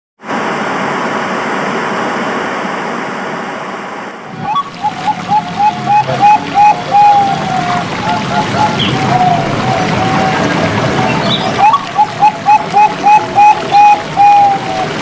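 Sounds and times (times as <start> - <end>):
steady rushing noise: 0.2 - 15.0
dove cooing: 4.4 - 15.0.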